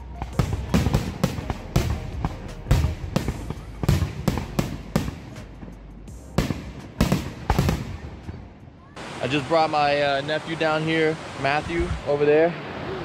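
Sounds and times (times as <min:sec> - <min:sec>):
fireworks bangs with rumble: 0:00.2 - 0:05.7, 0:06.3 - 0:08.4.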